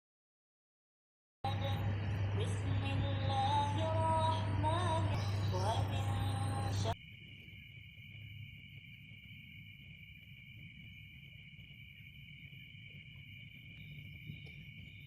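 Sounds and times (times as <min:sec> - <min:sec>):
high-pitched insect chorus: 0:05.1 - 0:15.0.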